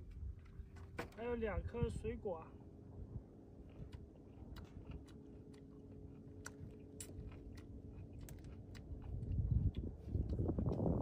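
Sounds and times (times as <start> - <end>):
faint low hum: 0.0 - 11.0
person chewing fruit: 3.4 - 11.0.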